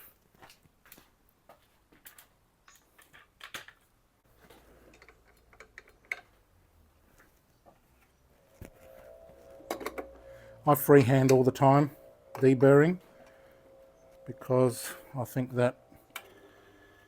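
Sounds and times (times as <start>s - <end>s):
low steady hum: 6.6s - 17.0s.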